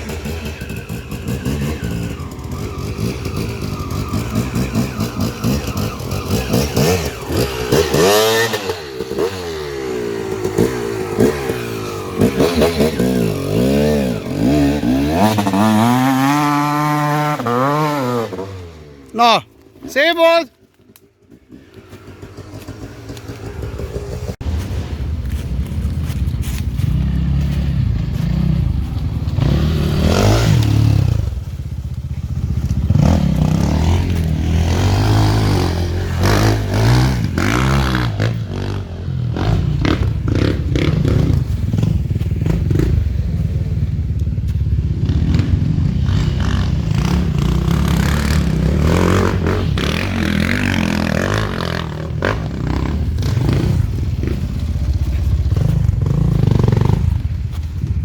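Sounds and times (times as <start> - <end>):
motorcycle engine revving: 0.0 - 19.2, 20.8 - 58.0.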